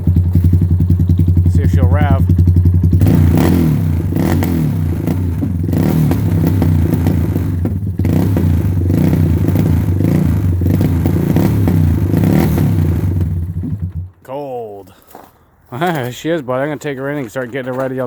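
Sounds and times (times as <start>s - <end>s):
quad bike engine running: 0.0s - 14.2s.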